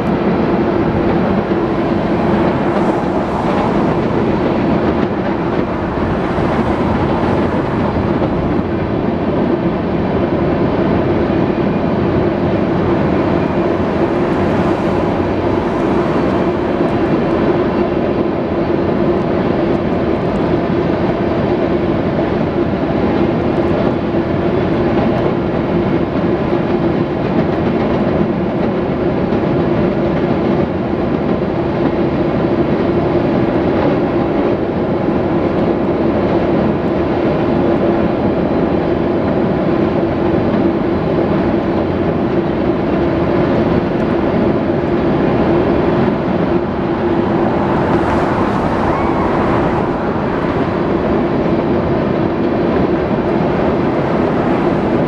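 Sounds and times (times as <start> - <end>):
steady droning tone: 0.0 - 20.0, 44.0 - 55.0
train wheels rumbling on rails: 0.0 - 55.0.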